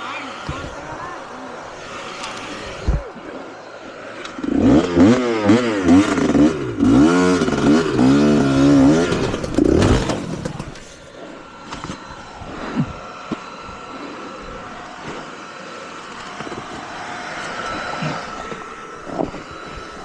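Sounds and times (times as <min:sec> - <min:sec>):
motorcycle engine revving: 0:04.1 - 0:20.0.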